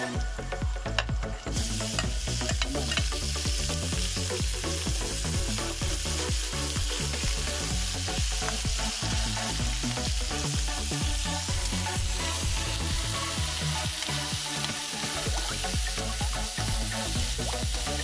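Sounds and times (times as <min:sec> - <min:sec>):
meat sizzling in hot oil: 0:00.0 - 0:18.0.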